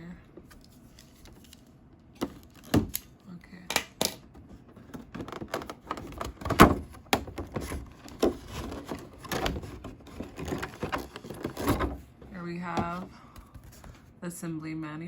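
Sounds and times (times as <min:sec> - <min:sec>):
cardboard box scraping and rustling: 0:07.5 - 0:12.0.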